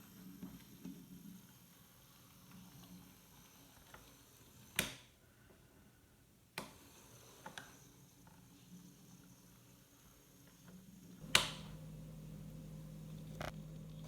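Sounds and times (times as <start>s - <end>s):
model locomotive humming: 11.1s - 14.0s.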